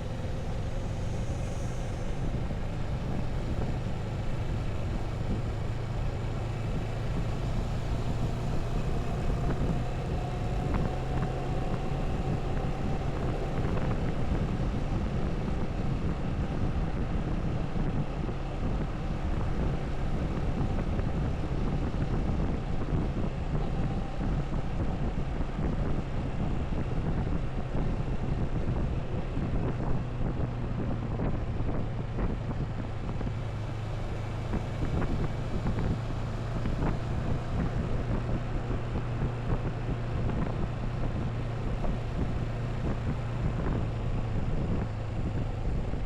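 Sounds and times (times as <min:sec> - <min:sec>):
motorcycle engine humming: 0:00.0 - 0:46.0
wind and road noise: 0:00.0 - 0:46.0.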